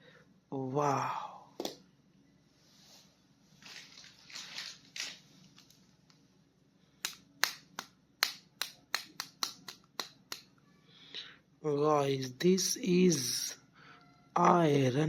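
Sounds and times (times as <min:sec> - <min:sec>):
plastic packaging rustling: 0:03.5 - 0:05.9.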